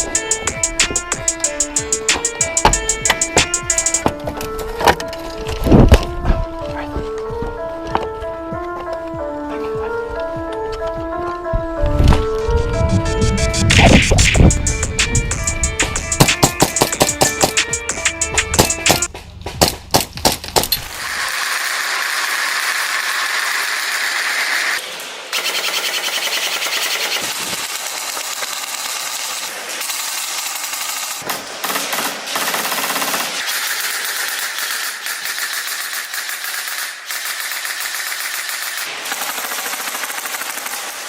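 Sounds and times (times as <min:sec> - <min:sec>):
music with drum hits: 0:00.0 - 0:04.2, 0:12.6 - 0:20.4
airsoft guns firing rapid bursts: 0:16.1 - 0:24.6, 0:25.3 - 0:41.0.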